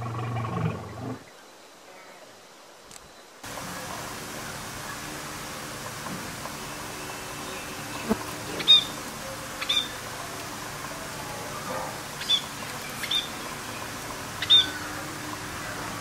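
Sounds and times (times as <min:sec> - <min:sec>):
steady background hiss: 0:00.0 - 0:16.0
budgerigars chirping: 0:08.5 - 0:09.0, 0:09.6 - 0:10.0, 0:12.2 - 0:14.9.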